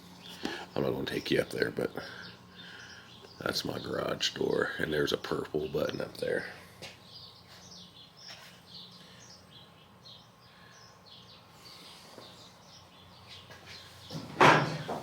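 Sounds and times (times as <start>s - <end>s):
small birds chirping: 0.0s - 14.9s
loud knock: 14.1s - 15.0s.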